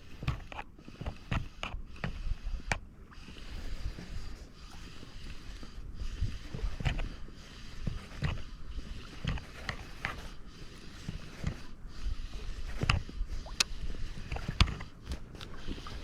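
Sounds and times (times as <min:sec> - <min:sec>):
water: 0:00.0 - 0:16.0
fishing gear clicking and knocking: 0:12.7 - 0:15.6.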